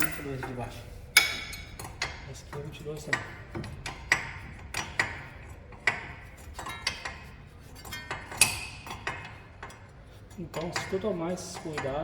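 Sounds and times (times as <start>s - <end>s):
wrench clinking on metal: 0.0s - 0.6s.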